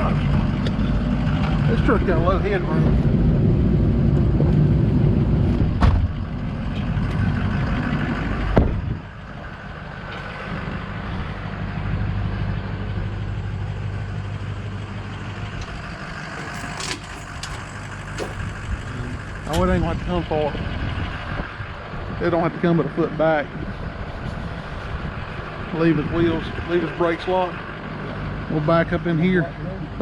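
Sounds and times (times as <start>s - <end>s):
truck engine idling: 0.0s - 30.0s
thump: 5.8s - 6.1s.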